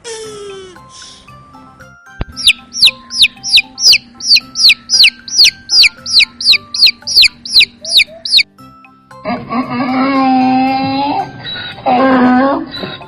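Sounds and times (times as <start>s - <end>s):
quiet background music: 0.0s - 13.0s
chick peeping: 2.3s - 8.5s.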